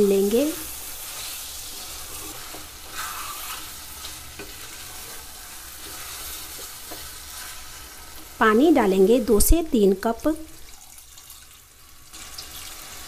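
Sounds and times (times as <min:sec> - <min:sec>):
masala sizzling in oil: 0:00.0 - 0:13.0
wooden spatula scraping pan: 0:01.0 - 0:07.9.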